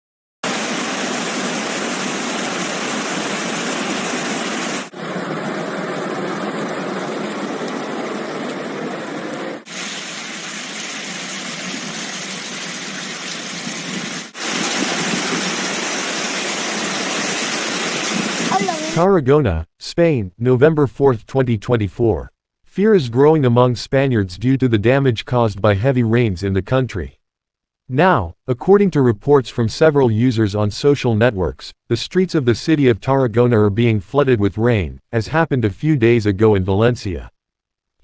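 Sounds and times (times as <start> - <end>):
floodwater rushing: 0.4 - 8.2, 9.7 - 19.0.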